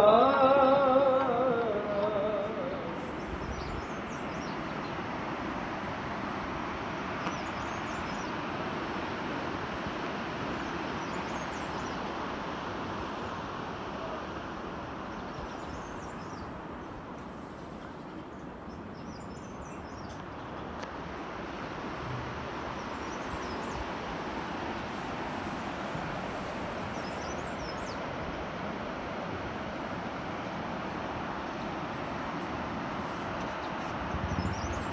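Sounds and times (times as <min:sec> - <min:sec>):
vehicle road noise: 0:20.8 - 0:27.4.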